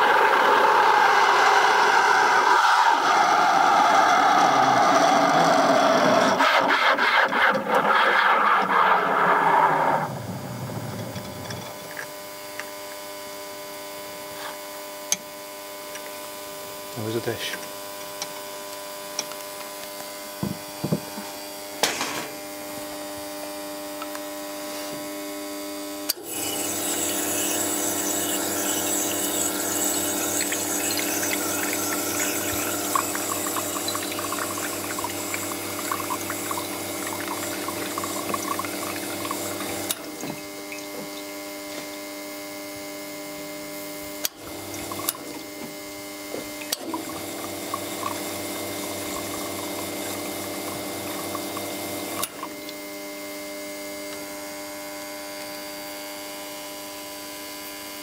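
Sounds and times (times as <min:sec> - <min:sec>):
espresso machine pump humming: 0:00.0 - 0:06.4, 0:08.7 - 0:12.7, 0:26.0 - 0:56.4.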